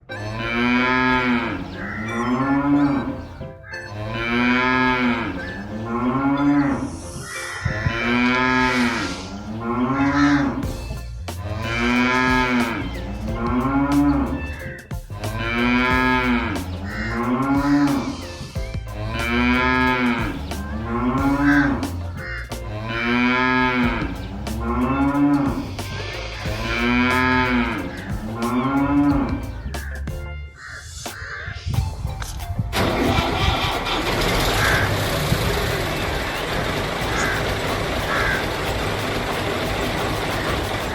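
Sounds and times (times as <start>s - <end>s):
cow mooing: 0.1s - 10.7s, 11.4s - 18.2s, 18.9s - 21.9s, 22.6s - 29.6s
steady low bass: 7.7s - 30.4s.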